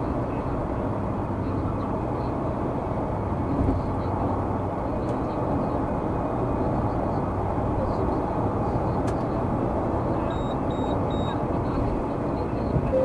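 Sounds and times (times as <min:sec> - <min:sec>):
car road and engine noise: 0:00.0 - 0:13.0
short high electronic beeps: 0:10.3 - 0:11.4.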